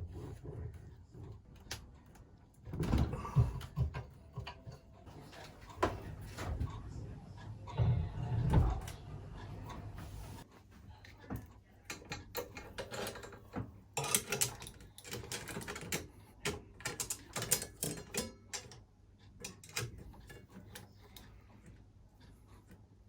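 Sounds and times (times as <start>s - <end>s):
metallic clicks and knocks of tools: 11.9s - 18.8s, 19.4s - 21.3s.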